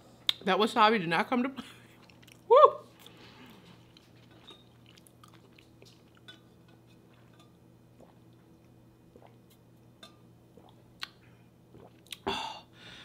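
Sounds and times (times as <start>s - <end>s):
low steady hum: 0.0s - 13.0s
mouth clicks and soft chewing: 1.9s - 6.4s.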